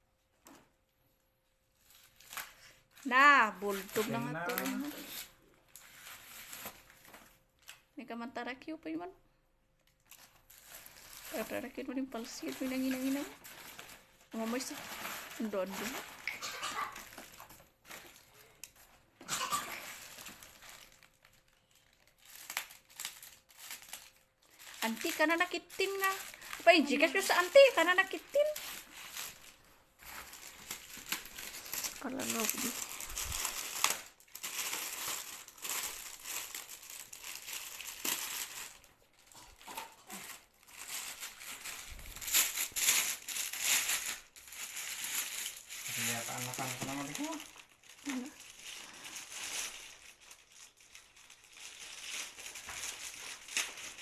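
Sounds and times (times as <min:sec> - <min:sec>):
plastic packaging crinkling: 0:01.6 - 0:07.9, 0:09.8 - 0:54.0.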